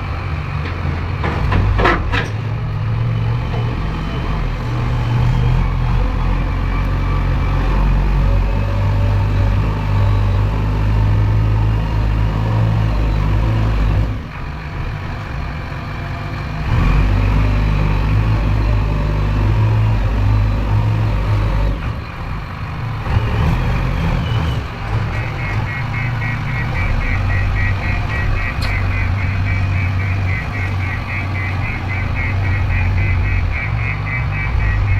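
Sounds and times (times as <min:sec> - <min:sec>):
diesel engine under load: 0:00.0 - 0:34.9
rapid high-pitched beeping: 0:25.2 - 0:34.9.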